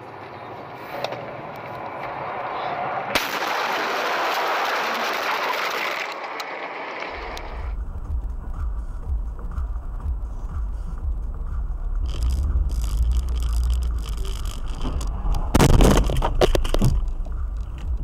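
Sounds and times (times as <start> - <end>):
vehicle road noise: 0.0 - 18.0
sharp crack: 3.1 - 7.5, 12.0 - 17.2
low rumble: 7.0 - 18.0.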